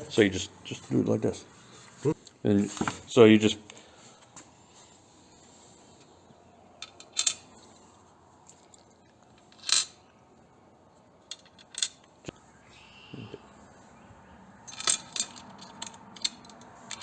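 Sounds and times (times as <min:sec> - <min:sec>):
metal parts clinking: 0:06.8 - 0:10.0, 0:11.2 - 0:12.2, 0:14.6 - 0:17.0.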